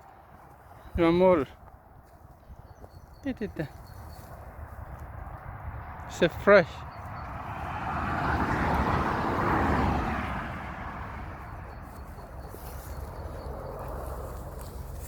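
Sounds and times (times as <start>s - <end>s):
vehicle passing by: 4.4s - 15.0s.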